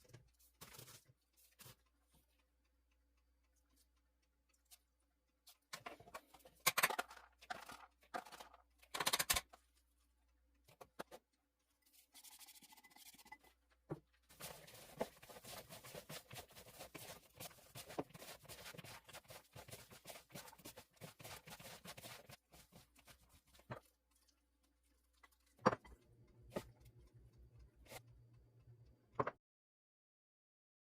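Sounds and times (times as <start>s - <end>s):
rustling and scraping: 0.1s - 1.8s, 14.3s - 24.3s
kitchen knocks and clicks: 5.7s - 9.6s, 25.6s - 26.7s.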